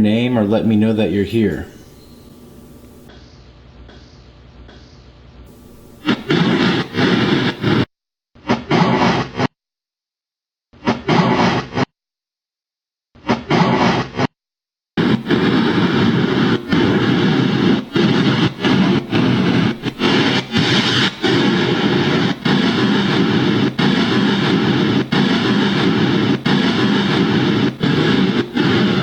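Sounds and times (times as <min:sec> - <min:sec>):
loud white noise hiss: 0:00.0 - 0:03.1, 0:05.5 - 0:07.8, 0:15.0 - 0:29.0.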